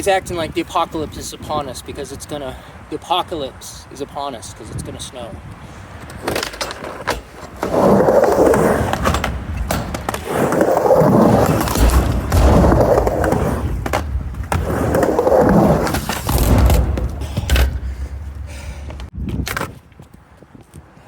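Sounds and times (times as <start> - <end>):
skateboard wheels rolling on ramp: 6.0 - 20.2
skateboard clacks: 6.0 - 20.9.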